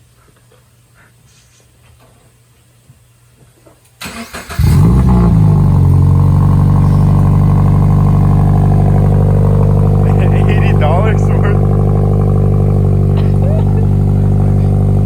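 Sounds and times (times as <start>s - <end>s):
car engine cranking and starting: 4.0s - 15.0s
car engine revving and idling: 4.4s - 15.0s.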